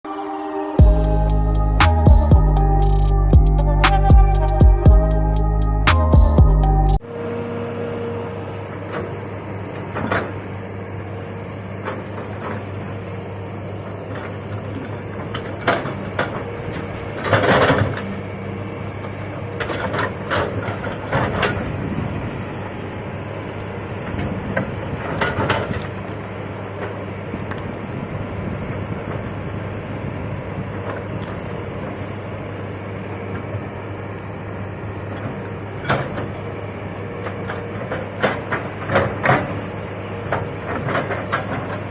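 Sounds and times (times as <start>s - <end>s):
excavator engine running: 0.1s - 41.9s.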